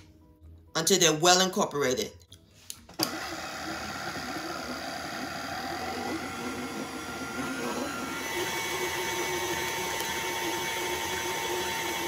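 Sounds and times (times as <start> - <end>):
stand mixer motor running: 3.0 - 12.0.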